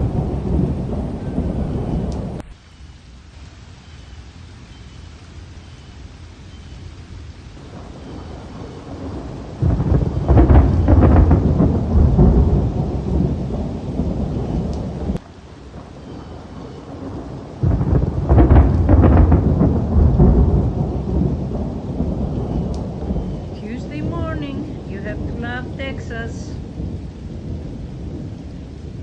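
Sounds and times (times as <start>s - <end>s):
thunder rumbling: 0.0s - 3.2s, 7.0s - 29.0s
steady rain: 0.0s - 29.0s.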